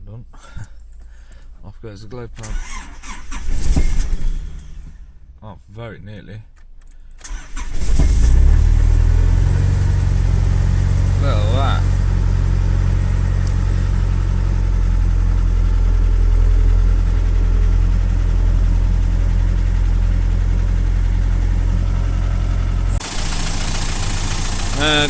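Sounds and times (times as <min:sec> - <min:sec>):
diesel engine idling: 0:07.3 - 0:25.0.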